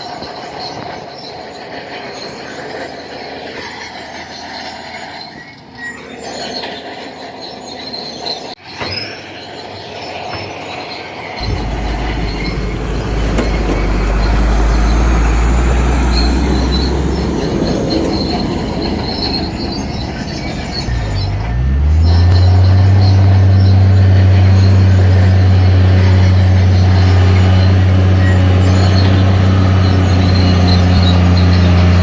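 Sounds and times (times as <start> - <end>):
bulldozer tracks squealing: 0.0 - 32.0
heavy low engine rumble: 11.4 - 32.0.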